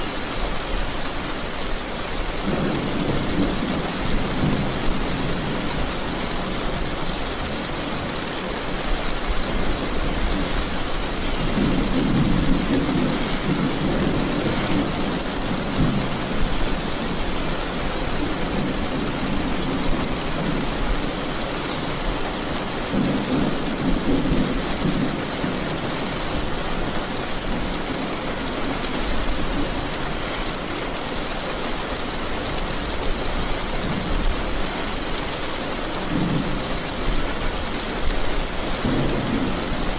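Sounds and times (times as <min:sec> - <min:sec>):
heavy rain: 0:00.0 - 0:39.9
rolling thunder rumbling: 0:02.4 - 0:07.1, 0:09.0 - 0:30.0, 0:38.4 - 0:39.9.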